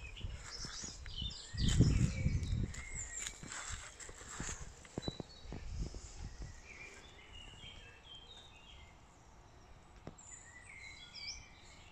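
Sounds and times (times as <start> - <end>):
low wind rumble: 0.0 - 8.0
birds chirping and whistling: 0.0 - 11.9.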